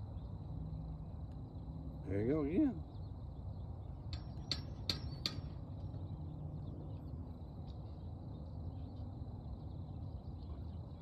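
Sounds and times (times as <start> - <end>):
low outdoor rumble: 0.0 - 11.0
bird chirping: 1.6 - 11.0.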